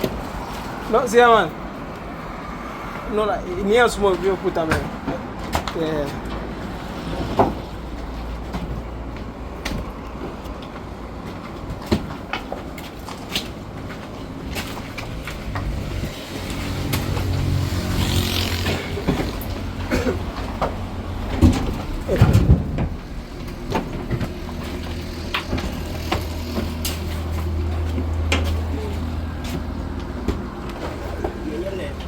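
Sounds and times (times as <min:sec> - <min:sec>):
knocks and rattles: 0:04.2 - 0:31.4
truck engine humming: 0:15.1 - 0:32.0.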